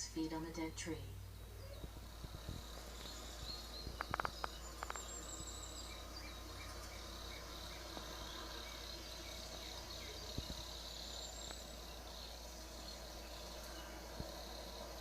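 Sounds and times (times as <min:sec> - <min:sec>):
low steady hum: 0:00.0 - 0:15.0
birds chirping and trilling: 0:00.1 - 0:15.0
sharp clicks: 0:03.8 - 0:05.2.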